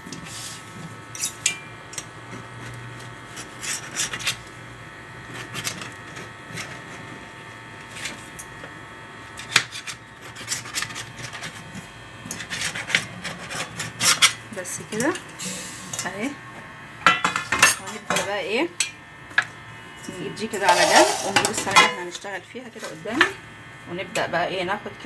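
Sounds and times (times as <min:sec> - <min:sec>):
pastry sheets rustling and scraping: 0:20.1 - 0:22.1.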